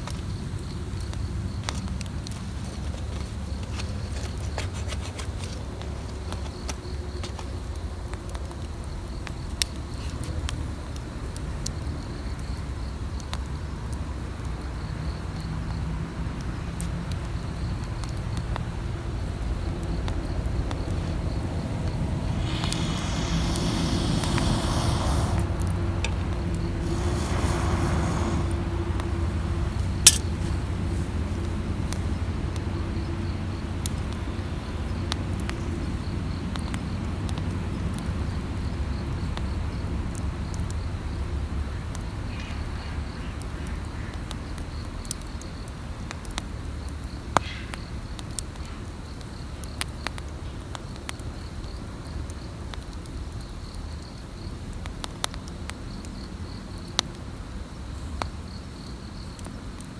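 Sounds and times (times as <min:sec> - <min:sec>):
campfire crackling: 0:19.2 - 0:32.3
insect chirping trill: 0:21.0 - 0:25.6.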